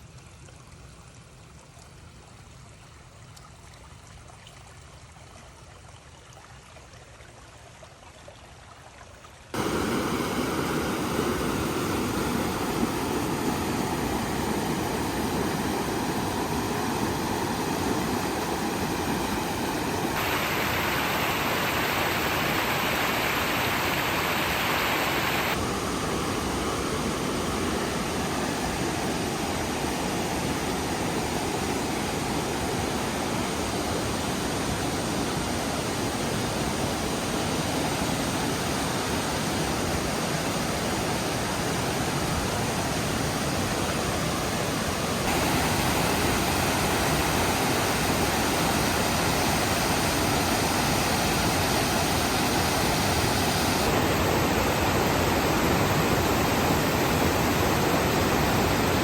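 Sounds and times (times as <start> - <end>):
steady rushing noise: 9.6 - 37.5, 44.4 - 59.0.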